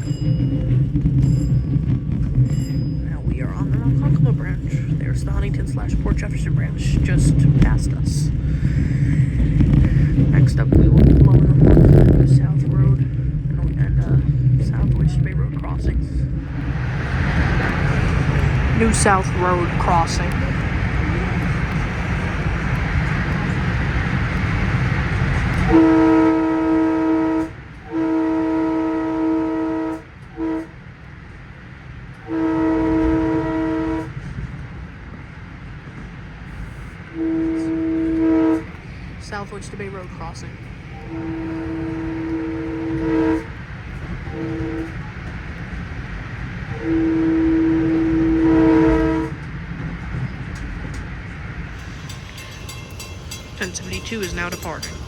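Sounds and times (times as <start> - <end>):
train running on rails: 0.0 - 55.0
train horn blasts: 25.1 - 30.9, 32.2 - 34.3, 37.1 - 39.1, 40.9 - 45.2, 46.6 - 49.6, 51.6 - 55.0.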